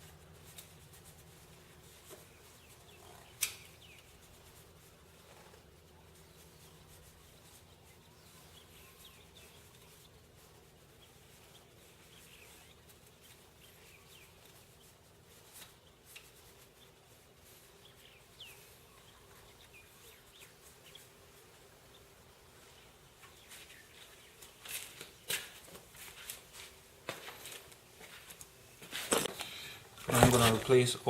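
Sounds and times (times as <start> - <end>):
faint bird chirps: 5.3 - 24.9.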